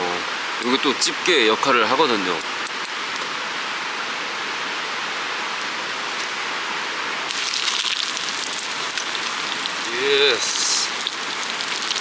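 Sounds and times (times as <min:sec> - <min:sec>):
cutlet sizzling in hot oil: 0:07.2 - 0:12.0.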